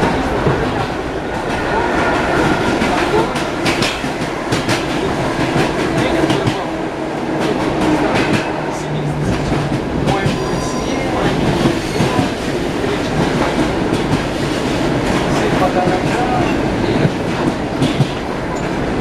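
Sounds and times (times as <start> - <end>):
train running rumble: 0.0 - 19.0
train wheels knocking on rails: 2.7 - 19.0.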